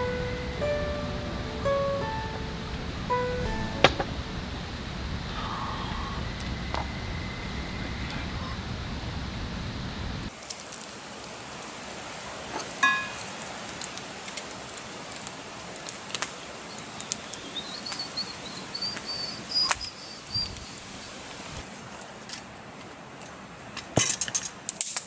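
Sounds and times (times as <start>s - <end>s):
short ringing note: 0.0s - 4.5s
steady hiss: 0.0s - 22.8s
bird chirping: 16.7s - 20.8s.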